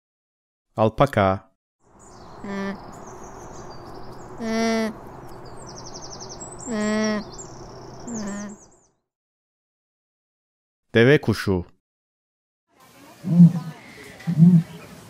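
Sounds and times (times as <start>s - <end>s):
birds chirping and trilling: 1.9s - 9.0s, 13.2s - 15.0s
alpaca humming: 2.4s - 2.9s, 4.4s - 5.1s, 6.6s - 7.3s, 8.0s - 8.6s.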